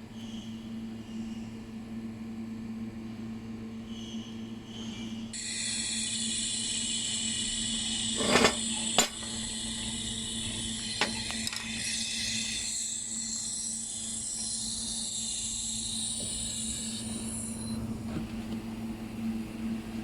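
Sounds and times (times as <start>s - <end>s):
constant low hum: 0.0s - 20.0s
laser welding hiss: 5.4s - 17.8s.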